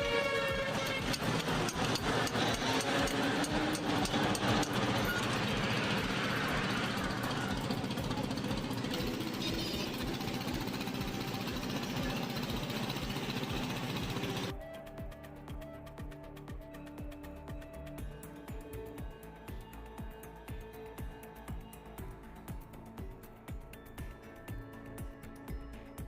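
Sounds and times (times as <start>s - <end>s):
truck engine running: 0.0s - 14.5s.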